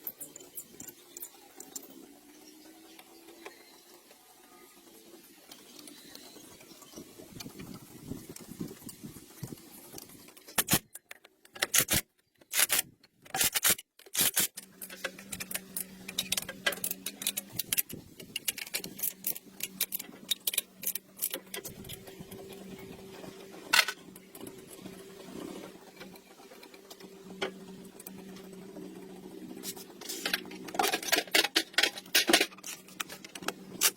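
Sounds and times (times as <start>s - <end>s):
small metal parts clicking: 9.8s - 22.7s, 30.1s - 33.9s.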